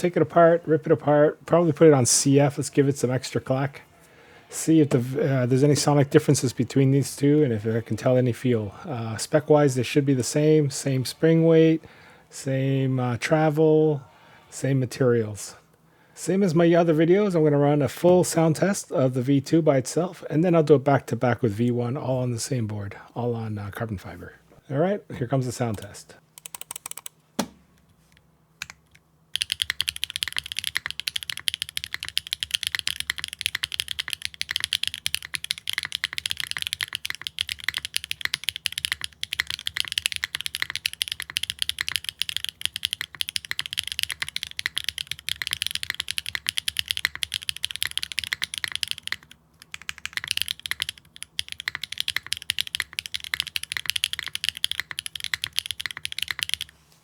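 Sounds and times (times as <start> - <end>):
fast mechanical keyboard typing: 26.4 - 27.1, 29.4 - 56.7.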